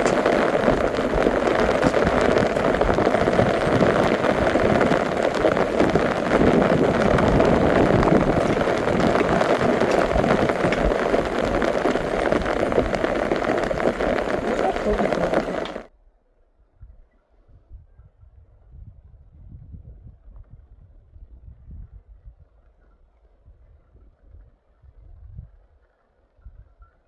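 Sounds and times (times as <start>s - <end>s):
steady rain: 0.0s - 15.9s.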